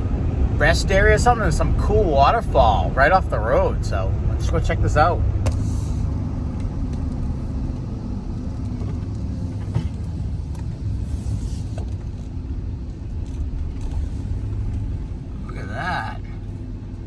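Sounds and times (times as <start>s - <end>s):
van engine and road noise: 0.0s - 17.0s.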